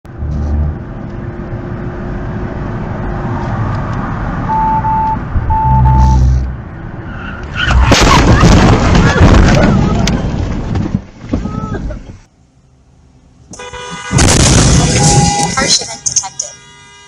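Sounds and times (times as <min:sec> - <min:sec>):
engine and road noise: 0:00.0 - 0:17.0
short electronic beeps: 0:04.5 - 0:06.6.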